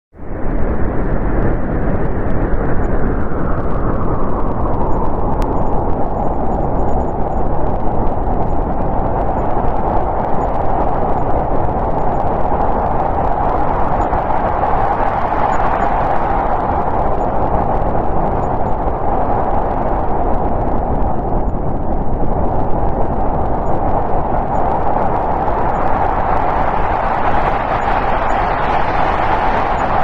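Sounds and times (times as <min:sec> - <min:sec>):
howling snowstorm wind: 0:00.2 - 0:30.0.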